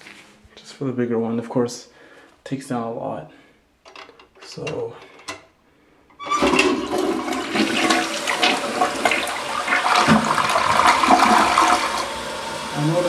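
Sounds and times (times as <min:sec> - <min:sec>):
toilet flushing: 0:06.1 - 0:13.0.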